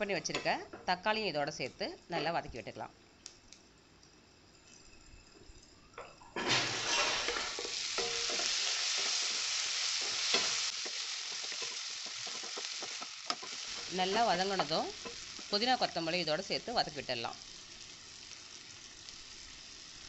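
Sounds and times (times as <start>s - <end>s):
food sizzling in hot oil: 4.2s - 20.0s
spatula scraping pan: 6.4s - 15.5s.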